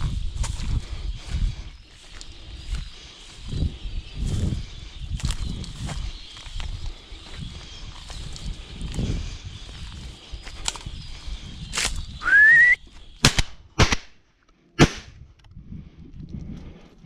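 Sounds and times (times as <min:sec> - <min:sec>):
rising whistle: 0:12.2 - 0:12.9
gunshot cracks: 0:13.2 - 0:14.1, 0:14.8 - 0:15.2.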